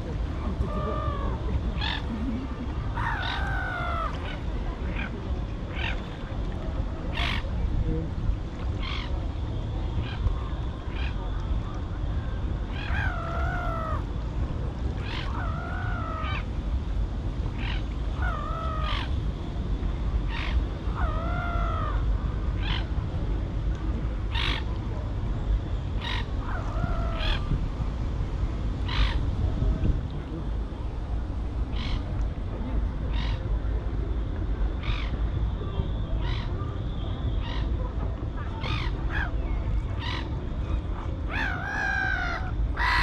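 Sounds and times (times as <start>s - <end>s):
low background noise: 0.0s - 43.0s
birds drawn-out arching calls: 2.9s - 4.4s, 12.7s - 14.1s, 15.0s - 16.5s, 17.6s - 19.2s, 20.3s - 22.9s, 26.0s - 27.5s, 41.3s - 43.0s.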